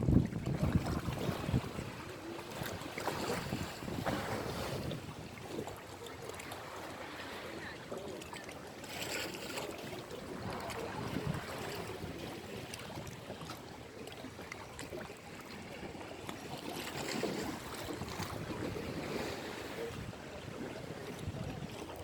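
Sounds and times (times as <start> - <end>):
wind buffeting microphone: 0.0 - 2.0
sea waves washing on shore: 0.0 - 22.0.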